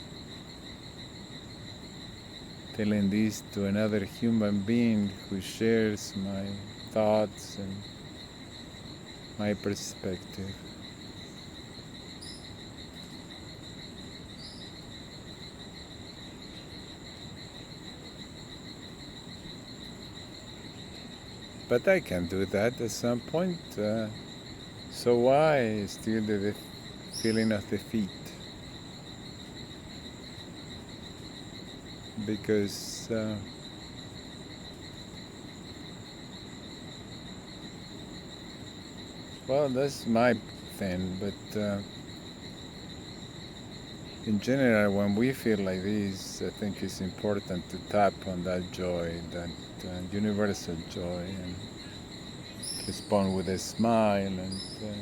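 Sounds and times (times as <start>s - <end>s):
high-pitched insect chorus: 0.0s - 55.0s
short high insect chirp: 50.1s - 55.0s.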